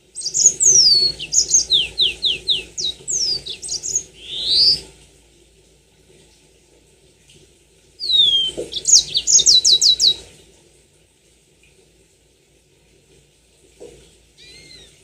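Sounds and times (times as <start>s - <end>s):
canary singing: 0.2s - 4.8s, 8.0s - 10.2s, 14.4s - 15.0s.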